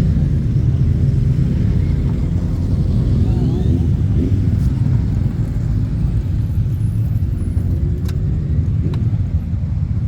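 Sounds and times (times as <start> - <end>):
motorcycle engines rumbling: 0.0 - 10.0.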